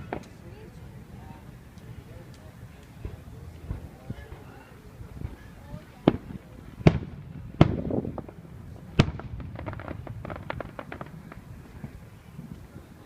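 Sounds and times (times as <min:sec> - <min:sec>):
firework crackling pops: 0:00.0 - 0:00.7, 0:01.6 - 0:04.5, 0:05.1 - 0:13.0
firework booms: 0:03.0 - 0:12.9.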